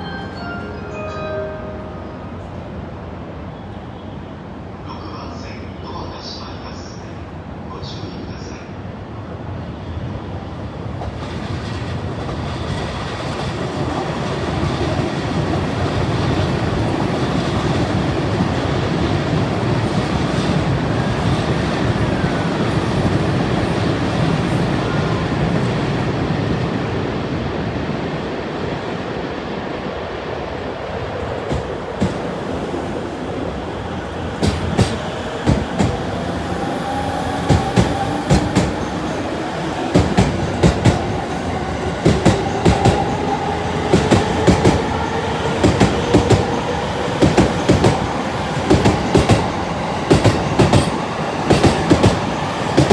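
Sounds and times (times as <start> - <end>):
train rumbling past: 0.0 - 52.9
wheels clacking over rail joints: 34.4 - 36.2, 47.2 - 52.9.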